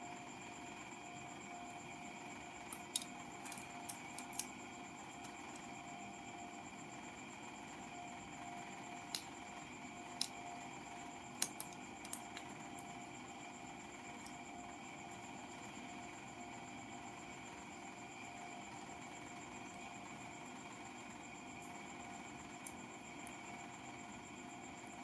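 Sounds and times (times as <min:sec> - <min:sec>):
electrical hum: 0:00.0 - 0:15.9.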